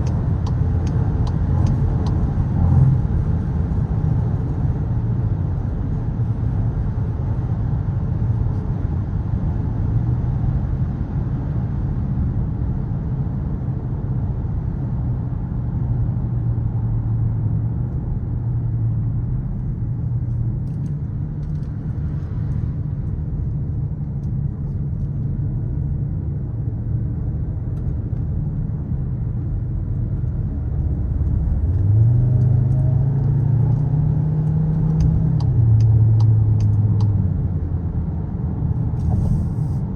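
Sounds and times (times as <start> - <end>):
road noise: 0.0 - 39.9
car engine running: 38.6 - 39.9.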